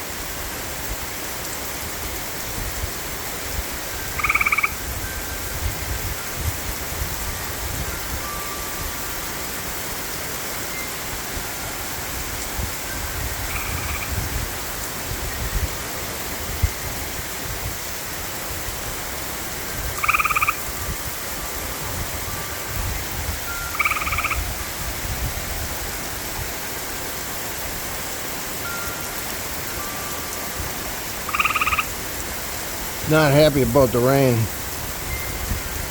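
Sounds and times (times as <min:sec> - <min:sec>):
heavy rain hissing: 0:00.0 - 0:35.9
frog trilling: 0:04.2 - 0:04.8, 0:13.5 - 0:14.1, 0:20.0 - 0:20.6, 0:23.6 - 0:24.4, 0:31.3 - 0:31.9.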